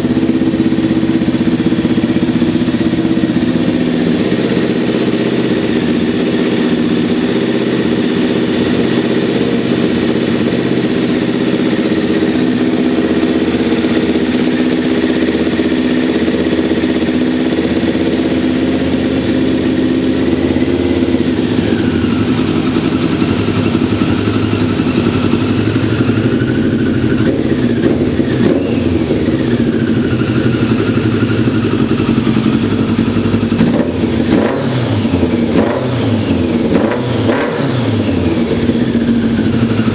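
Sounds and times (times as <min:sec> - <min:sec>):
high whine: 0:00.0 - 0:39.9
motorcycle engine running: 0:00.0 - 0:39.9.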